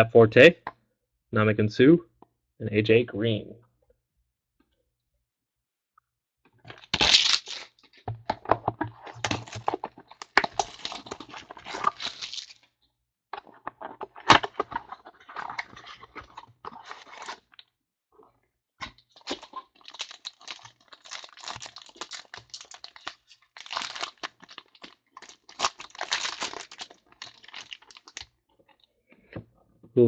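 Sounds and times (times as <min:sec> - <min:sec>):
packaging crinkling and tearing: 0:06.7 - 0:08.0, 0:09.0 - 0:12.7, 0:13.7 - 0:17.6, 0:19.1 - 0:28.3.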